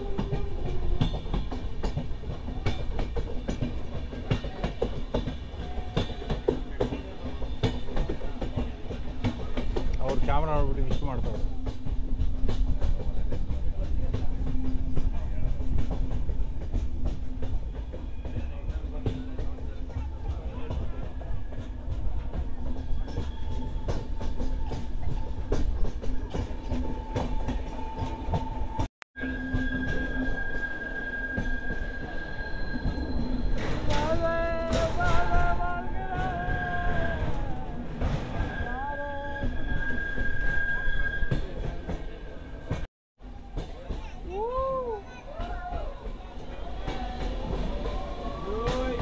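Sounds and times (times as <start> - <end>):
train rumbling: 0.0 - 49.0
steady wheel squeal: 22.7 - 34.1, 38.1 - 42.7
wavering multi-tone squeal: 22.7 - 34.6, 35.9 - 42.7.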